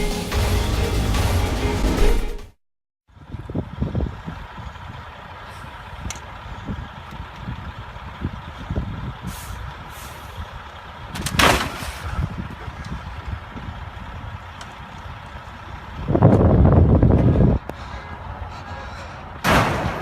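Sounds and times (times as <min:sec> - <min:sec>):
truck engine rumbling: 0:00.0 - 0:02.4, 0:03.1 - 0:20.0
air brake hiss: 0:09.3 - 0:10.4.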